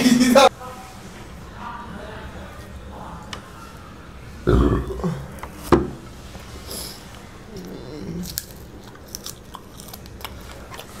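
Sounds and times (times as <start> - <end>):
chewing fried chicken: 7.6 - 11.0.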